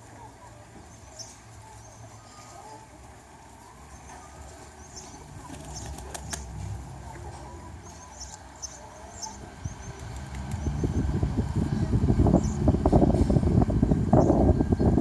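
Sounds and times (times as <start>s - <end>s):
small birds chirping: 0.0s - 15.0s
steady low rumble: 5.1s - 15.0s.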